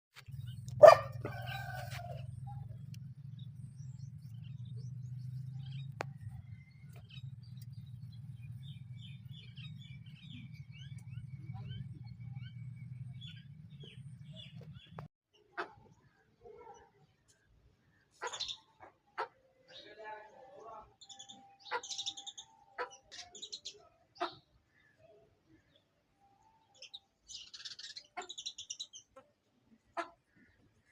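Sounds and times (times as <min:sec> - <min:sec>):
low steady hum: 0:00.2 - 0:15.1.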